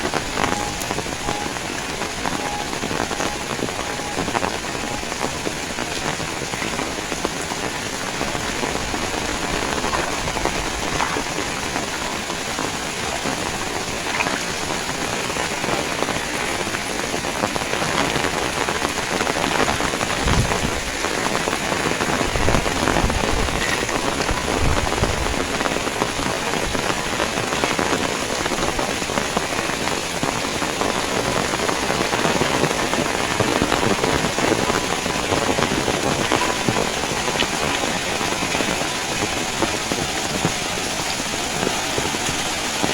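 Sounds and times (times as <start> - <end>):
heavy rain falling: 0.0 - 42.9.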